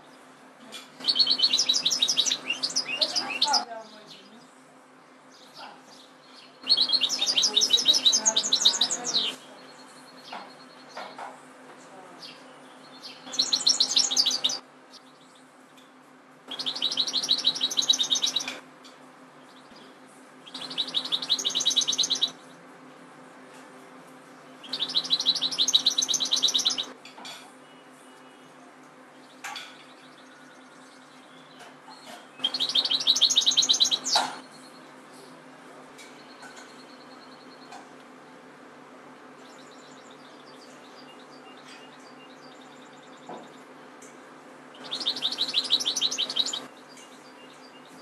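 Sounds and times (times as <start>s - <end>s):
goldfinch twittering trills: 1.0s - 3.6s, 6.4s - 9.4s, 13.0s - 15.3s, 16.5s - 18.6s, 20.5s - 22.4s, 24.6s - 26.9s, 32.4s - 34.4s, 44.8s - 48.0s.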